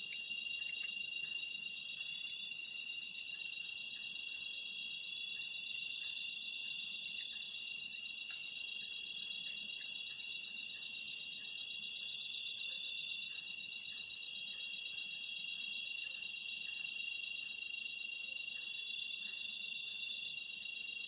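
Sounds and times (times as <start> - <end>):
insect chorus trilling: 0.0 - 21.0.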